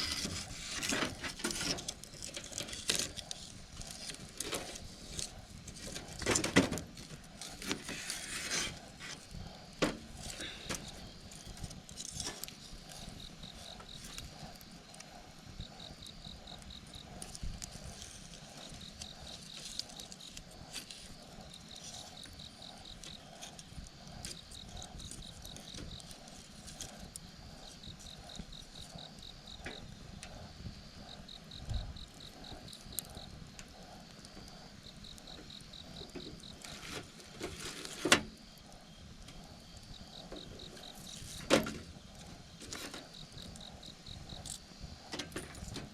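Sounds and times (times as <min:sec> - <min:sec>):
campfire crackling: 0:00.0 - 0:45.9
fire popping: 0:00.0 - 0:45.9
insects chirping in trills: 0:00.0 - 0:45.9.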